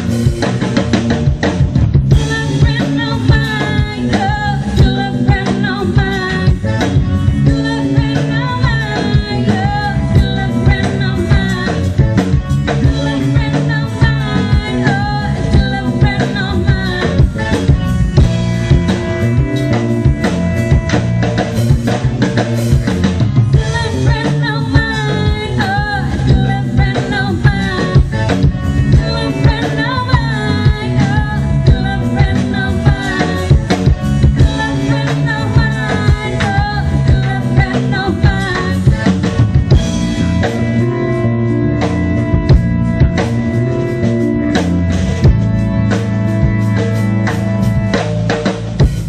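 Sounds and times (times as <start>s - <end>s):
pop-rock band playing: 0.0s - 49.0s
lead vocalist singing: 2.1s - 18.0s, 23.4s - 41.0s.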